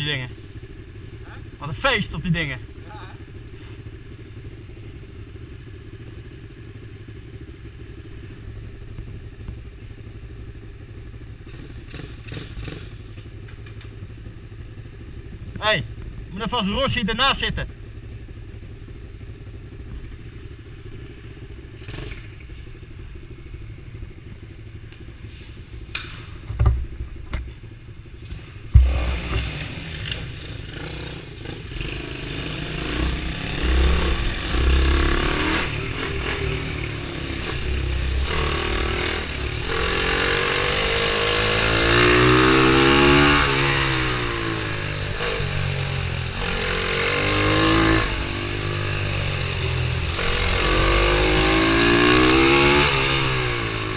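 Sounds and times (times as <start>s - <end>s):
motorbike engine revving: 11.4s - 13.1s, 20.5s - 22.5s, 28.1s - 53.9s
sharp knock: 28.7s - 29.6s.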